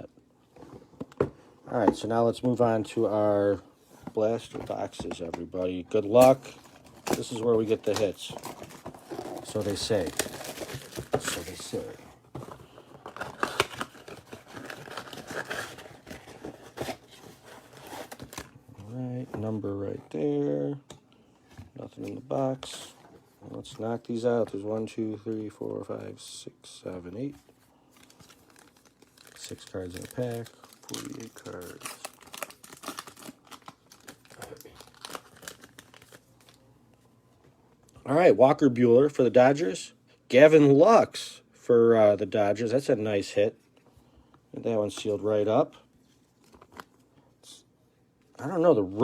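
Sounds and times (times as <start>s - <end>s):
plastic wrapper crinkling: 6.1s - 18.5s, 28.0s - 36.6s
plastic wrap crinkling: 28.0s - 36.6s.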